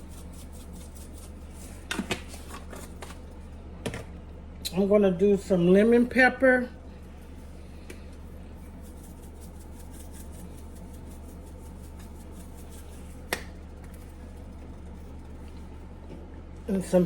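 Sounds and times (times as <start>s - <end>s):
seasoning shaker ticks: 0.0s - 1.8s, 8.1s - 15.7s
steady low hum: 0.0s - 17.0s.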